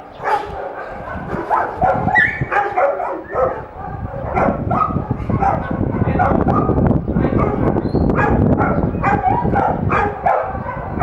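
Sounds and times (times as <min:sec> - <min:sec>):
dogs barking and yipping: 0:00.0 - 0:11.0.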